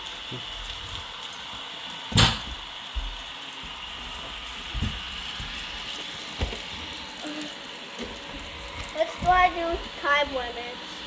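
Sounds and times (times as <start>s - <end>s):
robot vacuum motor hiss: 3.1s - 11.0s.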